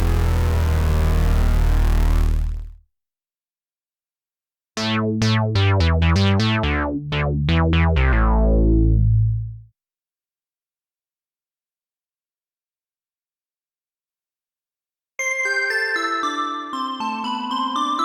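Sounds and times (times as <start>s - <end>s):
plucky synth bass line: 0.0s - 2.8s, 4.8s - 9.7s
sustained buzzy synth tone: 0.0s - 2.8s, 4.8s - 9.6s.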